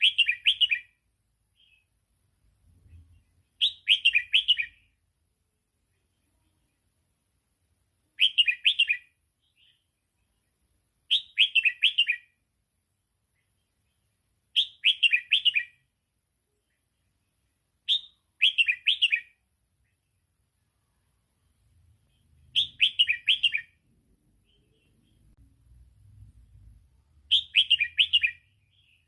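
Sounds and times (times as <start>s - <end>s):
bird singing whistled notes: 0.0s - 1.0s, 3.6s - 5.0s, 8.2s - 9.9s, 11.1s - 12.4s, 14.5s - 15.9s, 17.8s - 19.4s, 22.4s - 23.8s, 27.2s - 29.0s.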